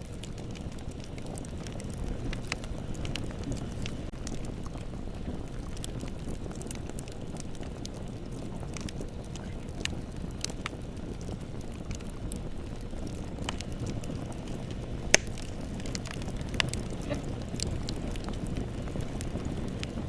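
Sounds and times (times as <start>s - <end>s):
bonfire crackling: 0.0s - 20.0s
loud sharp fire pop: 15.1s - 15.6s.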